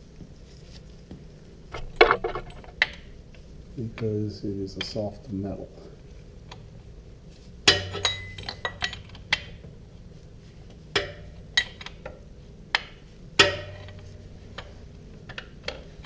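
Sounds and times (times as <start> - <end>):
metallic clanks with ring: 7.7 - 9.0.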